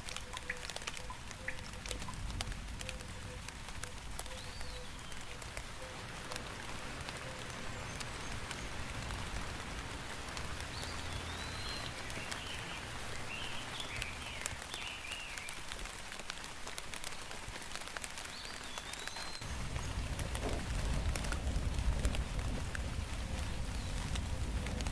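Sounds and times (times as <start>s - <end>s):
steady rain falling: 0.0s - 24.9s
high wavering calls: 4.3s - 15.5s.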